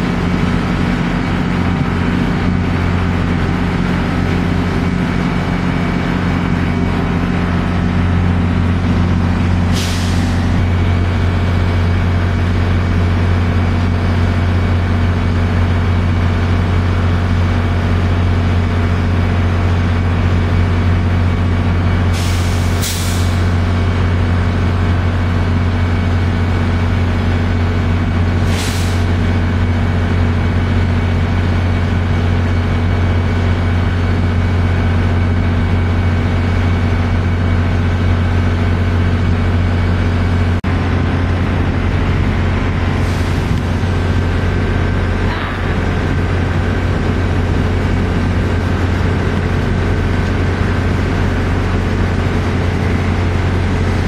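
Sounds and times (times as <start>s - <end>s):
deep hum of standing trains: 0.0s - 54.0s
air brake hisses: 9.7s - 10.6s, 22.1s - 23.5s, 28.4s - 29.1s.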